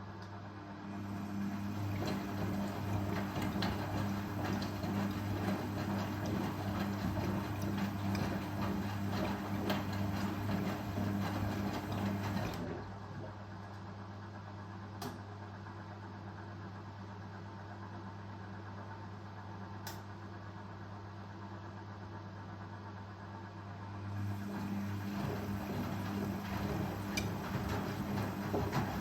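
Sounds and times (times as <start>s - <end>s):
washing machine motor hum: 0.0s - 29.0s.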